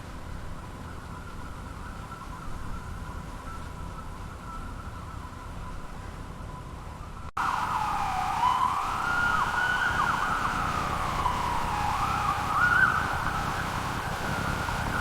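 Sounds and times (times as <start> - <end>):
ambulance siren wailing: 7.4 - 15.0.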